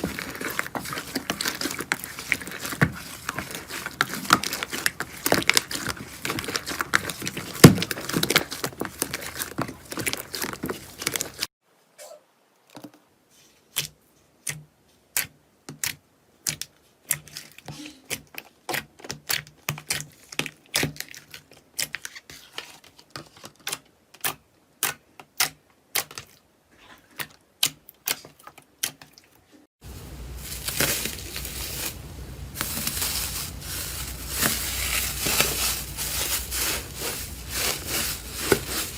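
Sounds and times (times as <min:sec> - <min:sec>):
slime crackling and popping: 0:00.0 - 0:11.5, 0:30.3 - 0:38.9.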